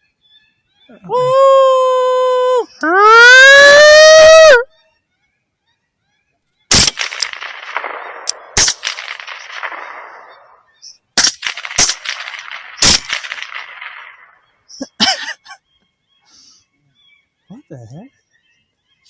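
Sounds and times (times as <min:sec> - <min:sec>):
rifle shots with rolling echo: 0:06.7 - 0:14.7.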